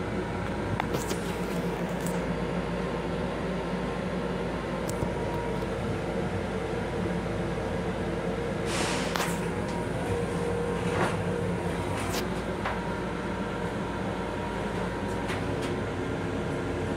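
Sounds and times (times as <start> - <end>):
train rumble and hum: 0.0 - 16.9
short hiss: 8.7 - 9.4.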